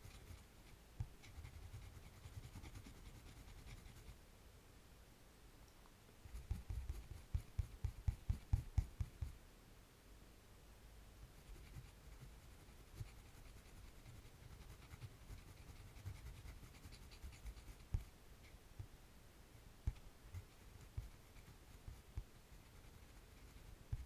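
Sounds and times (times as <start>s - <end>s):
pencil strokes scratching on paper: 0.0s - 4.2s, 6.3s - 9.4s, 11.3s - 18.6s, 19.8s - 24.0s.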